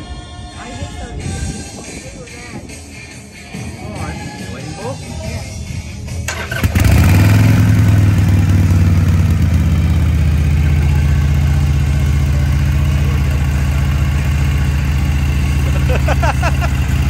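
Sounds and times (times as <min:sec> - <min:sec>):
motorcycle engine starting and idling: 0:06.1 - 0:17.0.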